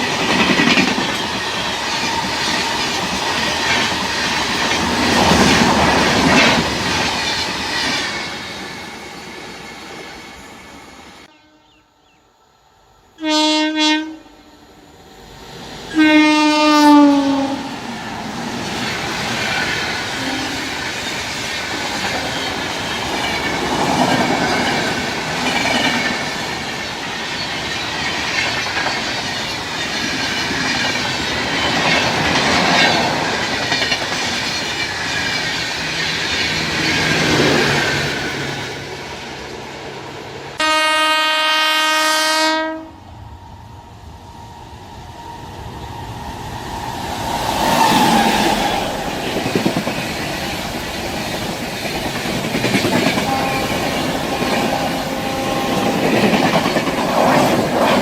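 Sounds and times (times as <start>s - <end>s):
train rushing and clacking: 0.0s - 11.3s, 15.2s - 40.9s, 42.0s - 58.0s
locomotive horn blasts: 11.3s - 11.8s, 13.2s - 14.6s, 15.9s - 17.7s, 40.6s - 43.0s, 53.2s - 56.1s.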